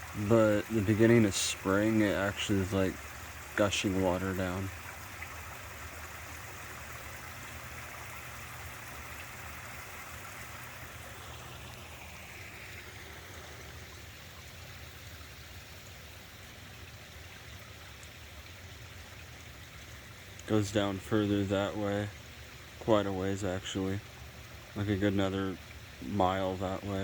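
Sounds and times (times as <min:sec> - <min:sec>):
water rushing over falls: 0:00.0 - 0:14.1.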